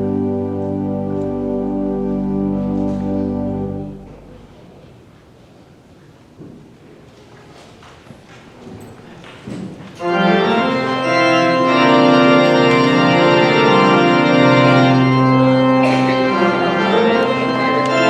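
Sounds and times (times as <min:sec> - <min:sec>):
church organ chords: 0:00.0 - 0:04.8, 0:10.0 - 0:18.0.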